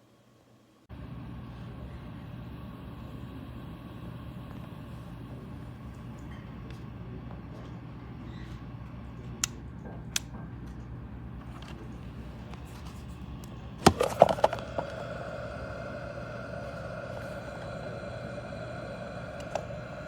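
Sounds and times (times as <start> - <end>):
humidifier humming: 0.9 - 20.0
humidifier dial clicking: 13.4 - 20.0.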